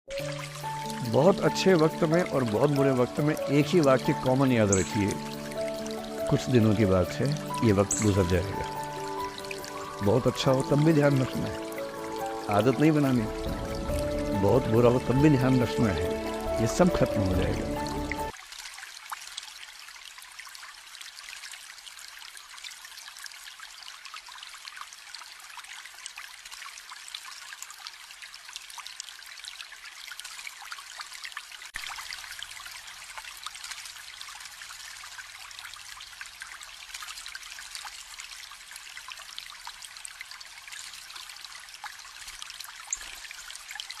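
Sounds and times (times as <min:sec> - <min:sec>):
water trickling and splashing: 0:00.1 - 0:44.0.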